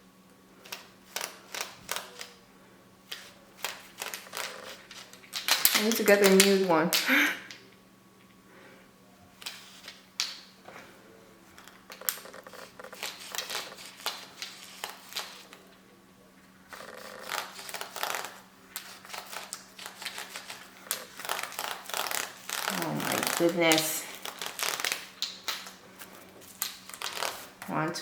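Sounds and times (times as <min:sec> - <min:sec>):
faint steady hum: 0:00.0 - 0:28.0
small clicks and scratchy strokes: 0:11.6 - 0:15.6, 0:16.7 - 0:27.7.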